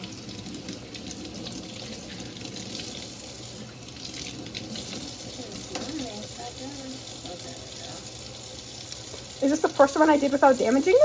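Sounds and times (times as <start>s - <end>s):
tap running into sink: 4.1s - 6.2s.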